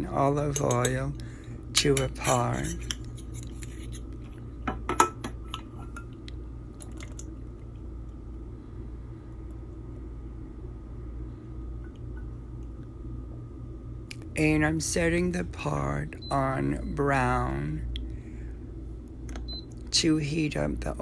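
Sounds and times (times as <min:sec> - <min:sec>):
steady low hum: 0:00.0 - 0:21.0
utensil clinking against pot: 0:00.5 - 0:01.0, 0:04.7 - 0:06.1.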